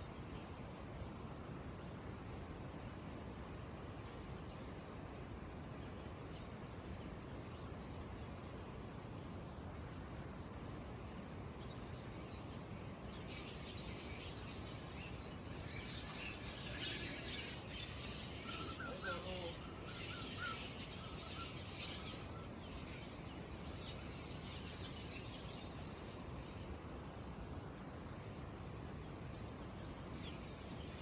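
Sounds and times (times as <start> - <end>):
crickets chirring: 0.0 - 31.0
birds chirping and calling: 11.7 - 26.7.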